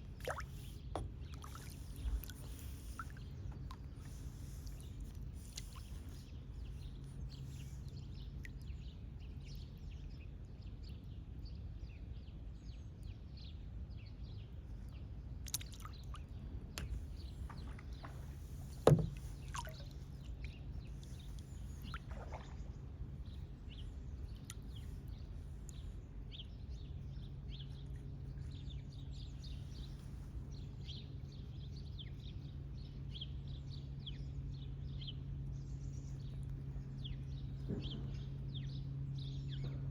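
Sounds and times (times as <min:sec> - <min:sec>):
water and boat noise: 0:00.0 - 0:39.9
low hum: 0:16.0 - 0:39.9.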